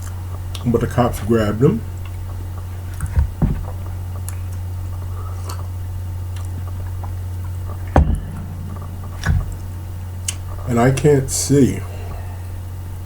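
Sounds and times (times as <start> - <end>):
low electrical hum: 0.0 - 13.0
dull thump: 3.0 - 3.9, 7.8 - 11.1.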